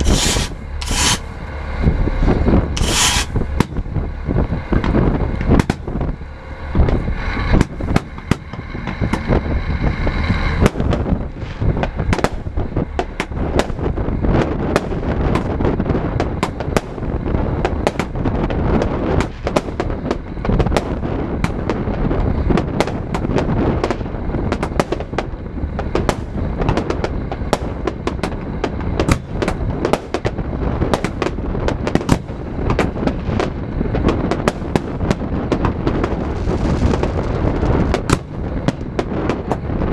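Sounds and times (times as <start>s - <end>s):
steady high tone: 0.0s - 5.4s
fireworks bangs and crackles: 0.0s - 39.9s.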